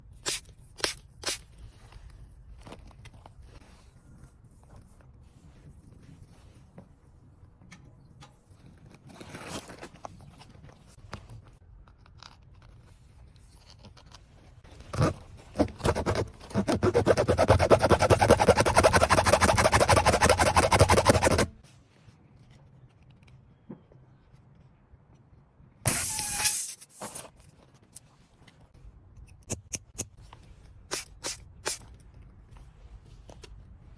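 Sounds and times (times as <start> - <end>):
loud hiss: 25.9 - 26.8.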